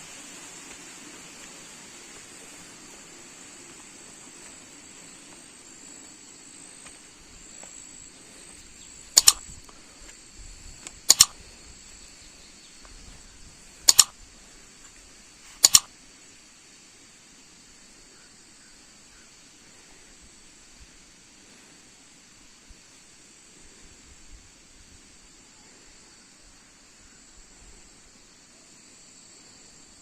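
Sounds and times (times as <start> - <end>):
high insect drone: 0.0 - 30.0
sharp double clicks: 9.1 - 9.7, 10.8 - 11.4, 13.8 - 14.2, 15.6 - 15.9.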